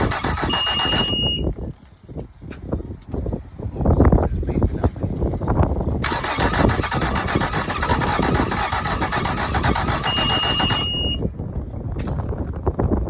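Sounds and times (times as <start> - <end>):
outboard motor cranking: 0.0 - 1.4, 6.0 - 11.2.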